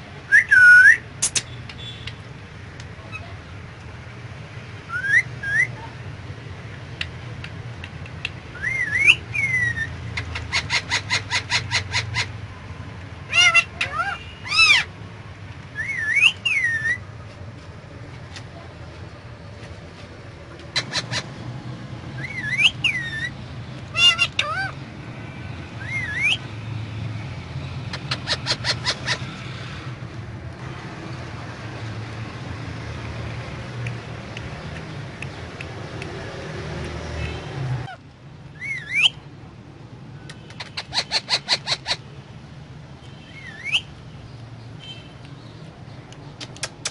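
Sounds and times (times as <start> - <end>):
parrot whistling: 0.3 - 1.0, 4.9 - 5.8, 8.5 - 9.9, 15.8 - 17.0, 22.2 - 23.3, 25.8 - 26.5, 38.6 - 39.2, 43.3 - 43.9
parrot whistling and calling: 0.3 - 1.5, 4.9 - 5.8, 8.5 - 12.3, 13.3 - 14.9, 15.7 - 17.0, 22.2 - 24.8, 25.8 - 26.5, 27.9 - 29.3, 37.8 - 39.2, 40.6 - 42.0, 43.3 - 43.9.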